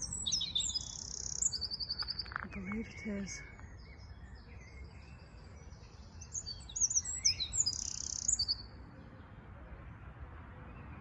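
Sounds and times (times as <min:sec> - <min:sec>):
wren singing: 0:00.0 - 0:08.7.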